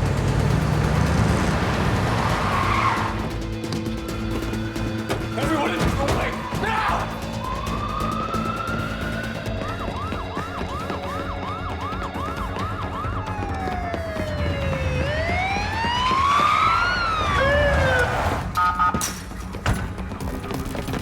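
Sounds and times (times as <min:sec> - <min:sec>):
emergency siren yelp and wail: 0:00.0 - 0:03.4, 0:05.5 - 0:19.2
second siren tone: 0:07.4 - 0:19.2.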